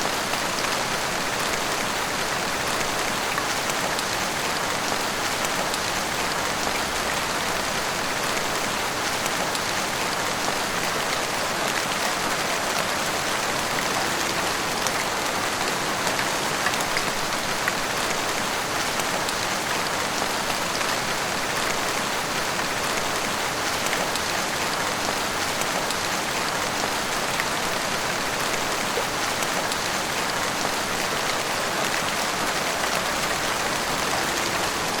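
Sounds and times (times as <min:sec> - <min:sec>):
heavy rain hissing: 0:31.0 - 0:35.0.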